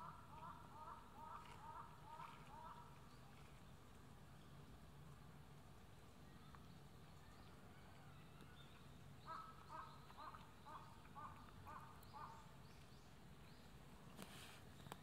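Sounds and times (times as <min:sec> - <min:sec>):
bird calling: 0:00.0 - 0:03.0, 0:09.2 - 0:12.8
low steady hum: 0:00.0 - 0:15.0.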